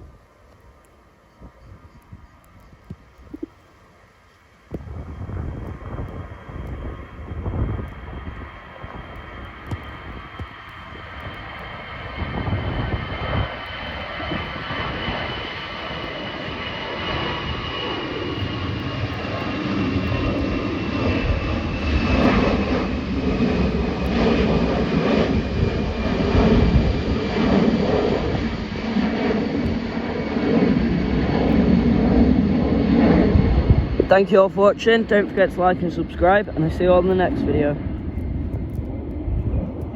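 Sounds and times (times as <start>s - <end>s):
jet engines roaring: 3.2s - 39.9s
high fan whine: 32.2s - 39.9s.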